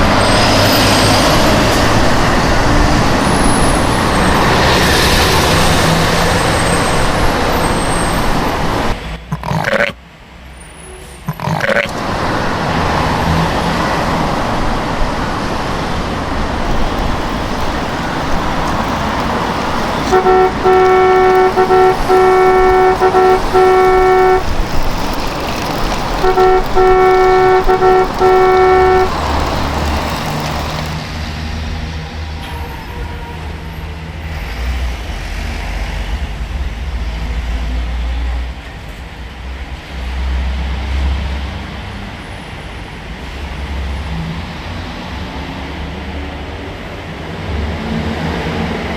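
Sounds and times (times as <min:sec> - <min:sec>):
vehicle engine rumble: 0:00.0 - 0:31.8
vehicle horn honking: 0:16.6 - 0:25.0, 0:26.2 - 0:31.0.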